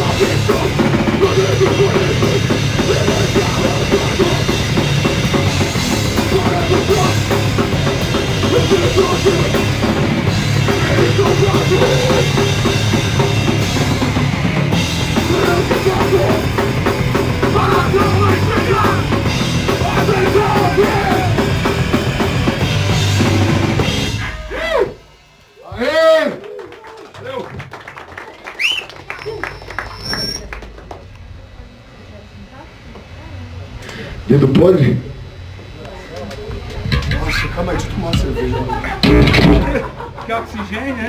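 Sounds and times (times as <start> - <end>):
punk rock band playing: 0.0 - 25.5, 36.7 - 41.0
pounding drum kit: 0.0 - 26.2, 36.6 - 40.8.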